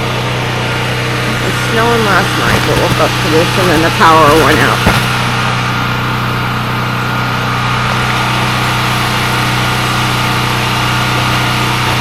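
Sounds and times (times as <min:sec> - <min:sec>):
portable generator engine humming: 0:00.0 - 0:12.0.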